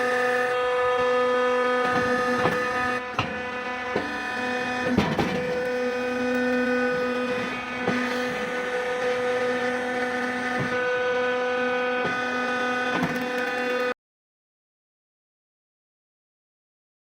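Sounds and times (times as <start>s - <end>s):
wood splitter and chipper humming: 0.0s - 13.9s.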